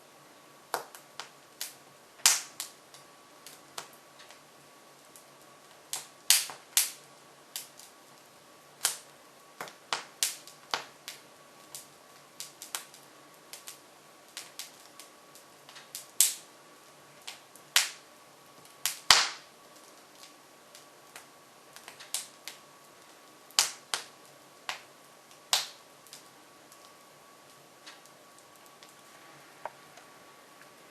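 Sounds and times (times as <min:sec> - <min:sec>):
logs crackling in wood stove: 0:00.0 - 0:30.9
sharp pops of burning wood: 0:00.7 - 0:04.4, 0:05.7 - 0:07.0, 0:07.6 - 0:07.9, 0:08.8 - 0:16.4, 0:17.2 - 0:18.0, 0:18.6 - 0:29.0.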